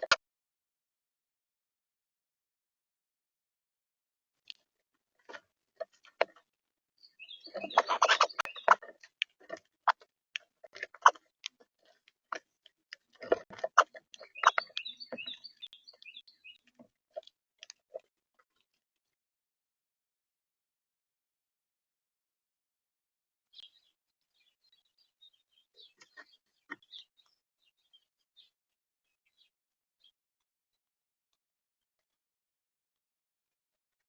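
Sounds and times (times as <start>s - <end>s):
short high bird chirps: 7.0s - 8.8s, 14.2s - 16.6s
birds tapping at feeder: 7.0s - 17.8s.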